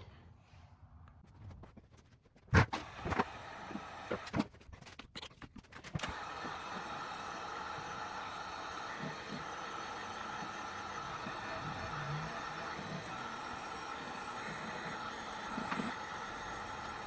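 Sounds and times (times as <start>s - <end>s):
heat gun blower whirring: 2.8s - 4.3s, 6.0s - 17.0s.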